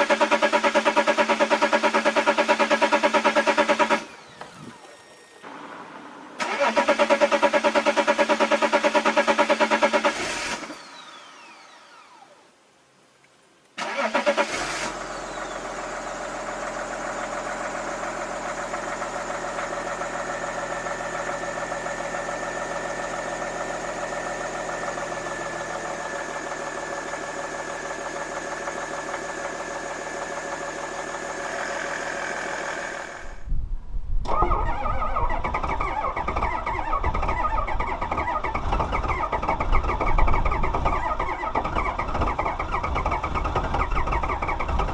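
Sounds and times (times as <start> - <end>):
diesel engine cranking and idling: 0.0 - 12.2, 13.8 - 33.6, 34.2 - 44.9
rough loud engine: 13.8 - 33.5, 34.3 - 44.9.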